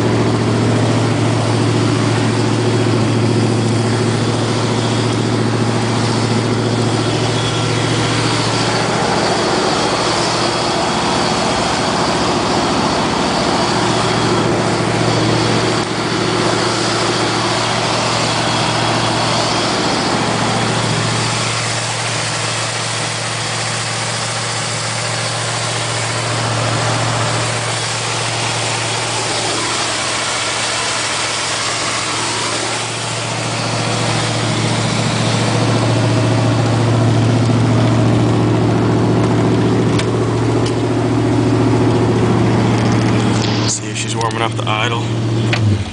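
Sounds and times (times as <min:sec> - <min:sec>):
car engine idling: 0:00.0 - 0:45.9.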